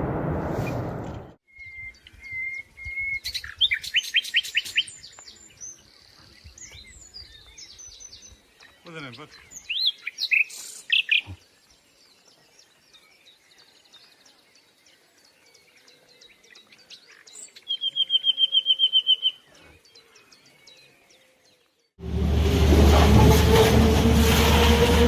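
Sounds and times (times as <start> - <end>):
songbird chirps: 1.4 - 22.0
bird trill: 17.2 - 19.5.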